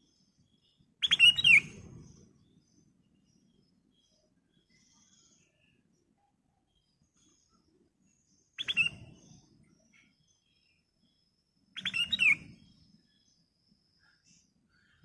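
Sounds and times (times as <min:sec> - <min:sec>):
bird chirping bursts: 0:01.0 - 0:03.7, 0:08.6 - 0:09.8, 0:11.6 - 0:13.3.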